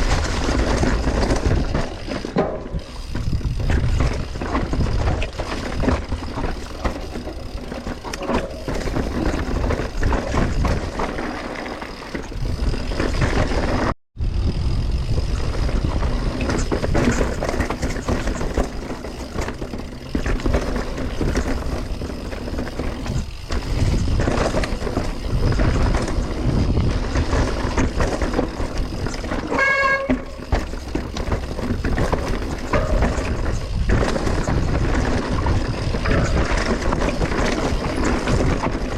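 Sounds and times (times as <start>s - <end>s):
bike rattling over roots: 0.0s - 38.9s
wind buffeting microphone: 2.8s - 11.1s, 14.2s - 29.3s.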